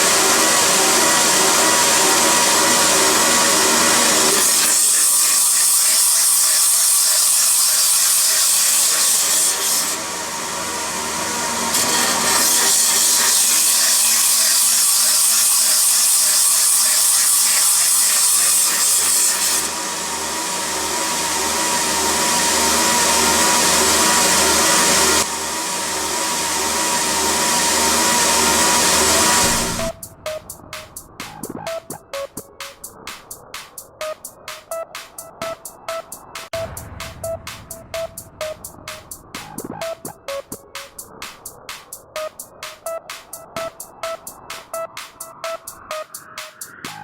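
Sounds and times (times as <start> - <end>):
grinder hissing against metal: 0.0 - 29.8
machine hum: 19.7 - 32.8, 35.4 - 41.2.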